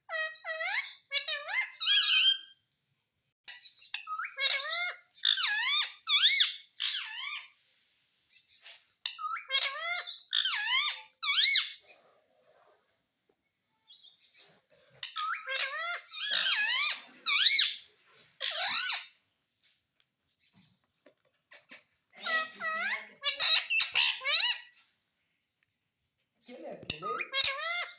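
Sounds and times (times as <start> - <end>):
parrot squeaky warbling calls: 0.0 - 2.6, 3.5 - 7.5, 9.1 - 11.8, 15.0 - 19.2, 22.2 - 24.9, 26.9 - 27.9.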